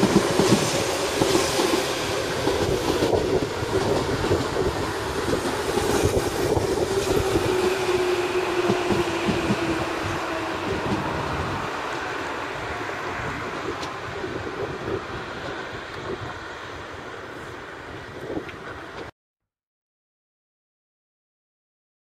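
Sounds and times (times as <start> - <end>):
train wheels clacking on rails: 0.0 - 12.3
train whine: 0.0 - 19.1.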